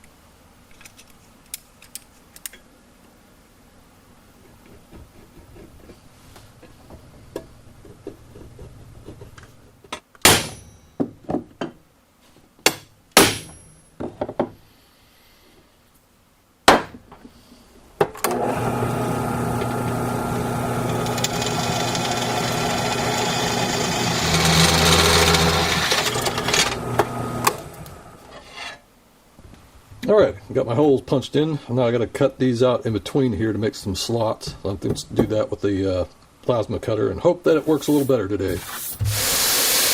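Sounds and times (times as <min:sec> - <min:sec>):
power tool motor drilling steel: 0:18.3 - 0:28.3, 0:38.8 - 0:39.9.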